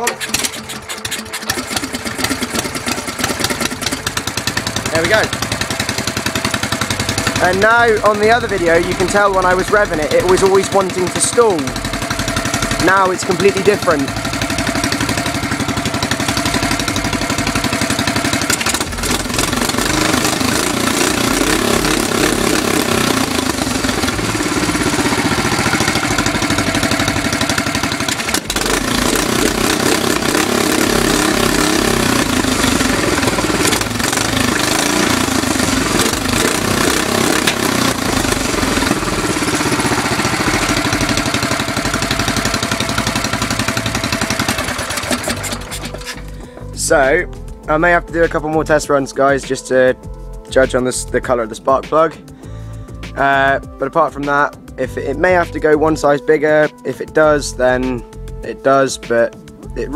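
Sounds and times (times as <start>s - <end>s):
small engine revving: 0.0s - 46.7s.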